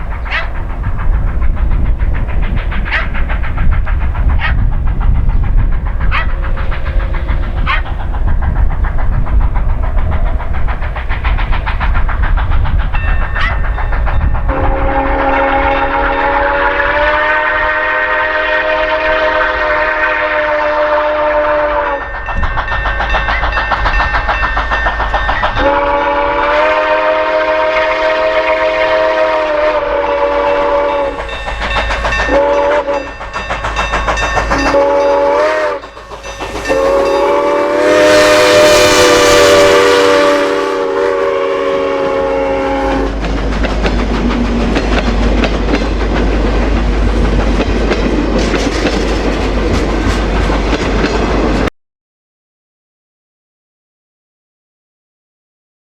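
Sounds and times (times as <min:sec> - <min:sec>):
train rolling over rails: 0:00.0 - 0:51.7
steam locomotive whistle blasts: 0:14.5 - 0:22.5, 0:25.2 - 0:43.3.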